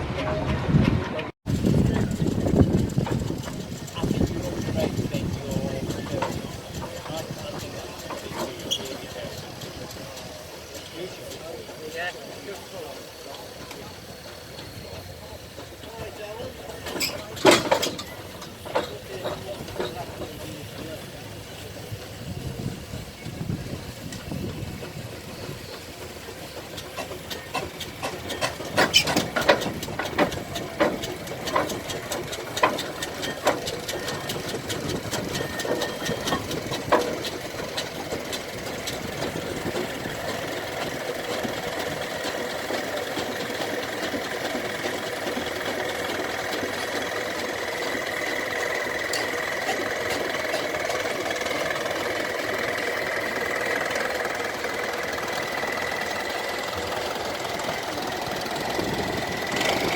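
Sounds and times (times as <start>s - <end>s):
steam traction engine running: 0.0s - 59.9s.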